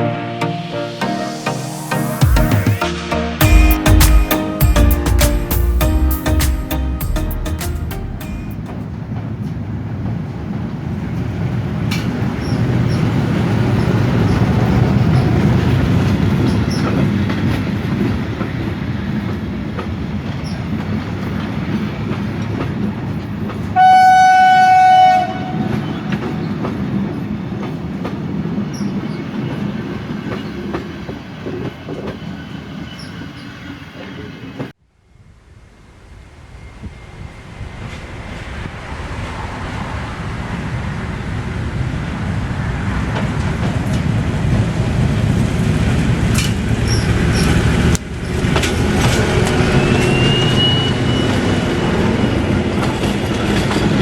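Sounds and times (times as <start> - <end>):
train passing with wheel noise: 3.5 - 54.0
locomotive horn blast: 23.8 - 26.1.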